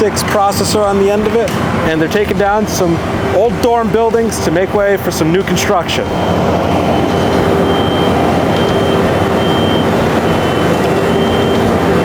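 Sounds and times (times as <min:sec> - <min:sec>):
excavator running: 0:00.0 - 0:12.0
thin high tone: 0:06.0 - 0:12.0.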